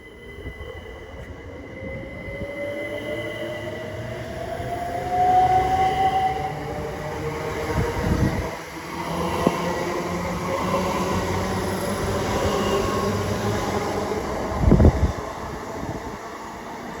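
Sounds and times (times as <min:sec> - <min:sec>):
train rumbling: 0:00.0 - 0:17.0
train whine: 0:00.0 - 0:17.0.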